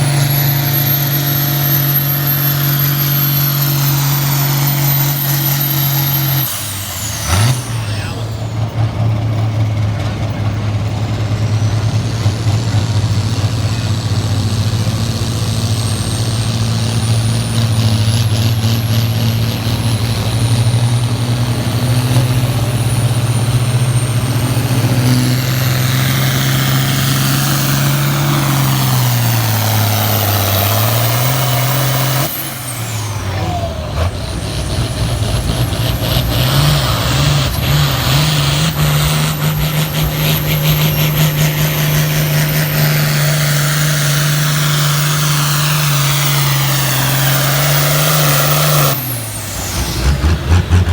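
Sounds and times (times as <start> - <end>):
high turbo whistle: 0.0 - 8.6
diesel tractor engine running hard: 0.0 - 50.9.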